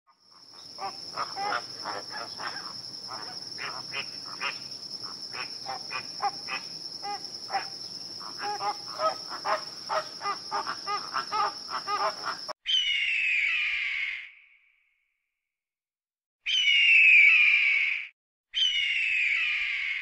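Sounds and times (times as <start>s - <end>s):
flamingos honking: 0.6s - 4.6s, 5.4s - 12.5s.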